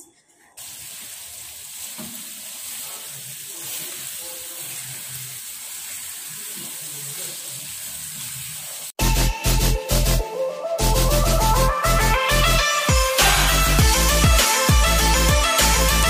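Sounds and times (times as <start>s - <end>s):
spatula stirring in a pan: 0.2s - 9.0s
food sizzling in a frying pan: 0.6s - 9.0s.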